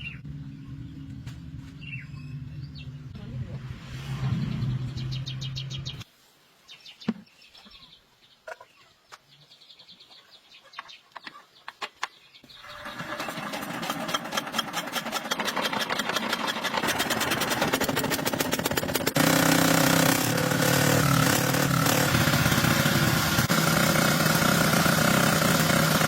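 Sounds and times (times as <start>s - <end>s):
small motorbike engine: 12.5s - 26.0s.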